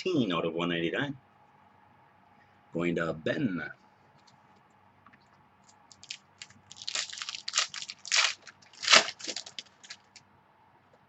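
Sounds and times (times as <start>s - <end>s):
plastic packaging crinkling and tearing: 5.9s - 10.2s.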